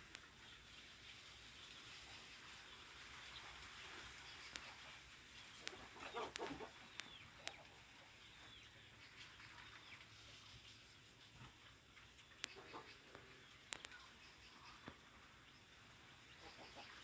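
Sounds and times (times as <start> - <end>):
hen clucking: 2.0 - 9.9, 11.4 - 15.4, 16.2 - 17.0
sharp clicks: 12.4 - 14.0.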